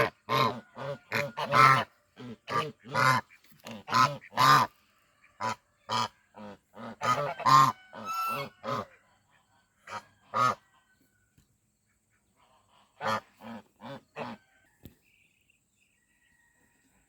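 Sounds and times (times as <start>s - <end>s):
geese honking: 0.0s - 9.1s, 9.8s - 10.7s, 12.3s - 14.5s.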